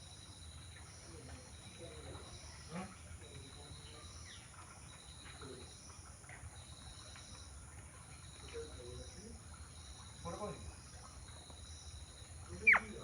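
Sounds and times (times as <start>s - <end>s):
insects trilling: 5.0s - 13.0s.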